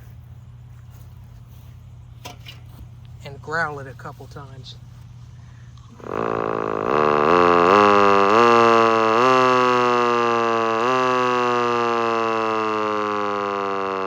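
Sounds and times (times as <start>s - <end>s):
electric warning siren growling: 5.9s - 14.0s.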